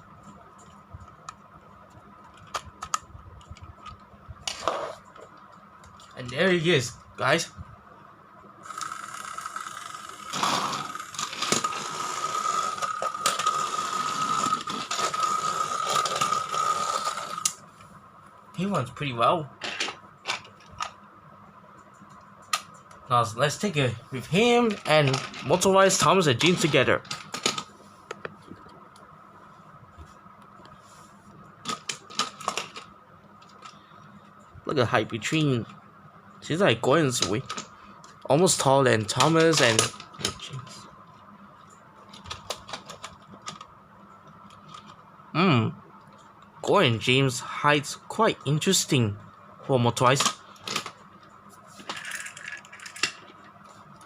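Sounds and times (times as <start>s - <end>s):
faint steady hum: 0.0s - 54.0s
toy train motor whining: 8.6s - 17.6s.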